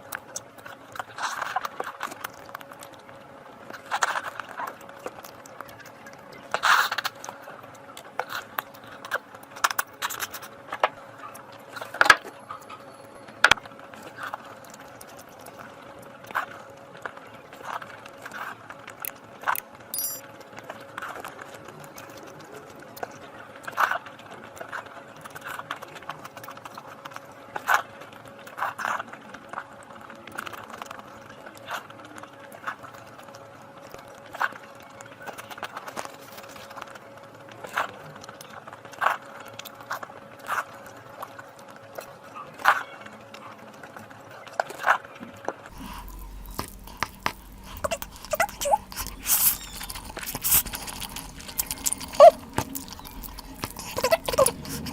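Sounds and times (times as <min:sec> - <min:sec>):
chewing smacks and clicks: 0:45.7 - 0:54.9
steady hum: 0:45.7 - 0:54.9.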